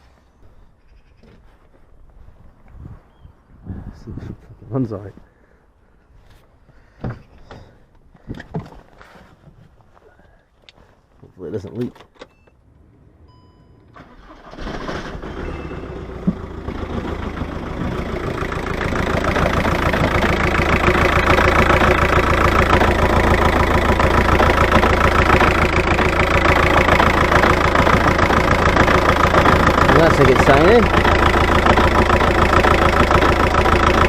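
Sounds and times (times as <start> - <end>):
diesel engine cranking and idling: 13.8 - 34.0.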